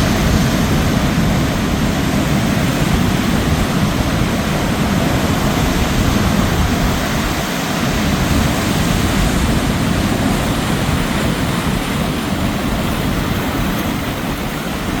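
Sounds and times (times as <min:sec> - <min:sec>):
ocean surf washing: 0:00.0 - 0:15.0.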